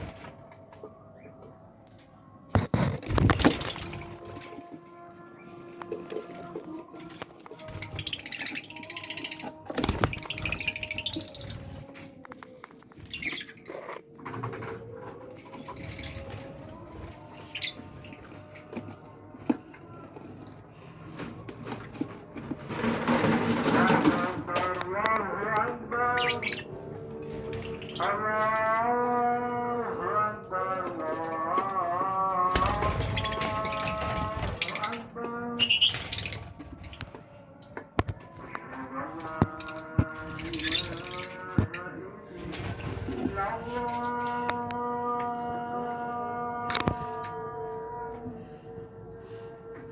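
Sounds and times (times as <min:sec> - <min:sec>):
lovebirds scratching and tapping: 0:05.8 - 0:16.6, 0:21.2 - 0:29.4, 0:30.6 - 0:42.0
lovebirds chirping: 0:07.6 - 0:11.9, 0:32.6 - 0:38.3, 0:39.2 - 0:42.0.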